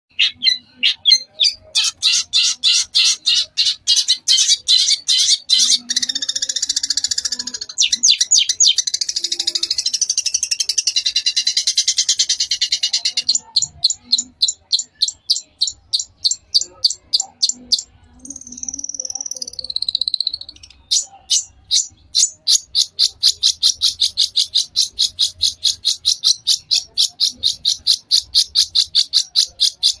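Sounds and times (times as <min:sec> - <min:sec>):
dense bird chattering: 0:00.1 - 0:30.0.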